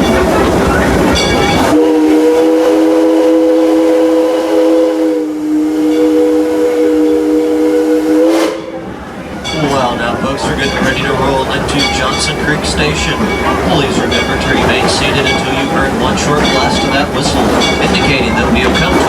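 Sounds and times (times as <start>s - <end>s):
train running: 0.0s - 19.0s
steam locomotive chime whistle: 1.1s - 8.8s, 9.4s - 19.0s.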